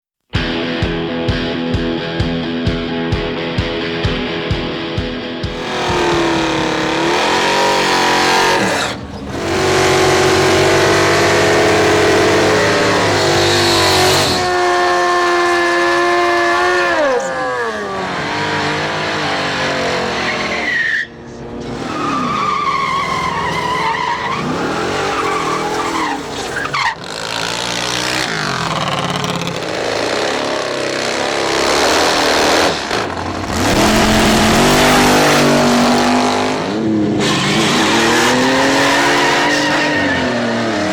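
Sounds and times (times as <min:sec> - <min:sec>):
car engines revving hard: 0:05.4 - 0:40.9
tyre squeal: 0:05.5 - 0:30.6, 0:36.7 - 0:40.9.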